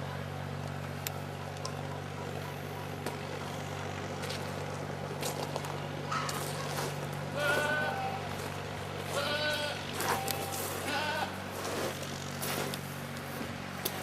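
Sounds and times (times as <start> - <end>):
goat bleating: 7.3 - 11.5.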